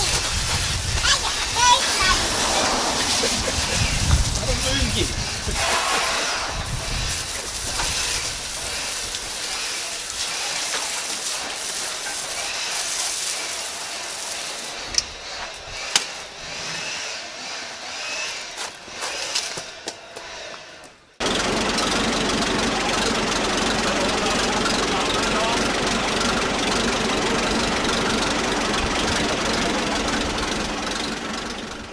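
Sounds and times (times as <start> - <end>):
tractor engine running: 0.0 - 5.7, 21.2 - 31.9.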